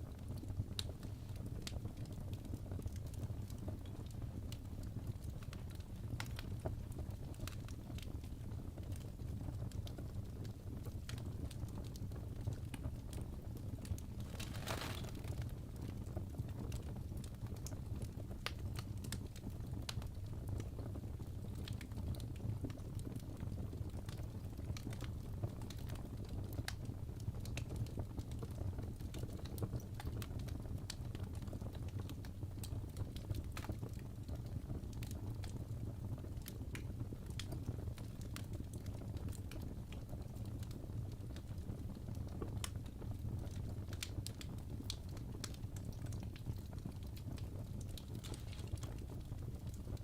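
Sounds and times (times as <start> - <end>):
fireplace crackling: 0.1 - 8.2, 10.8 - 17.8, 41.4 - 50.0.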